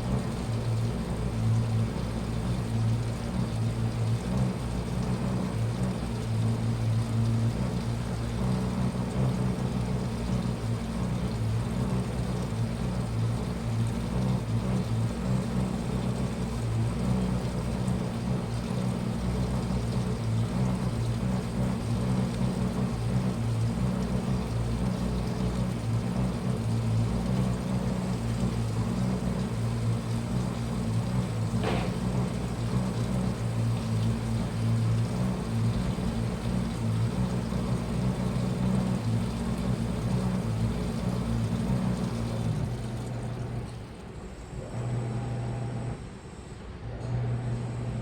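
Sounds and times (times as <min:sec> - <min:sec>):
washing machine humming: 0:00.0 - 0:48.0
short knock: 0:31.6 - 0:32.1.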